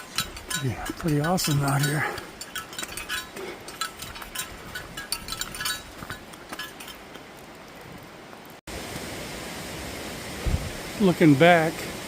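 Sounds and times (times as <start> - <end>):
bear bells jingling: 0.0 - 8.0
rain hiss: 5.8 - 12.0.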